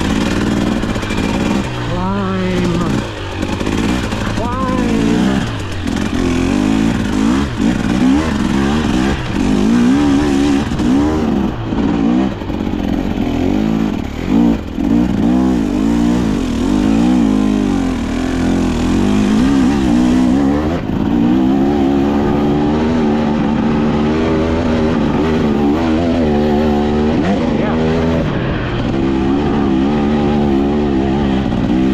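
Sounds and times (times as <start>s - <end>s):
dirt bike engine revving: 0.0s - 31.9s.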